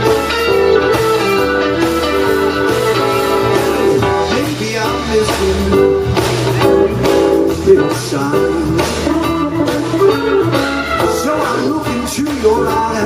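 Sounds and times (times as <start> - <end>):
bass guitar: 0.0 - 13.0
drums: 0.0 - 13.0
lead guitar with bent notes: 0.0 - 13.0.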